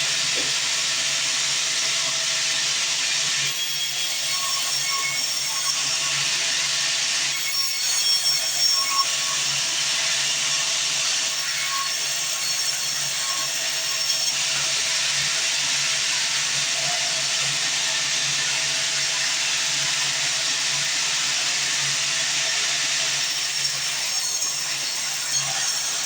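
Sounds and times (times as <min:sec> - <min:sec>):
bandsaw cutting log: 0:22.3 - 0:26.0.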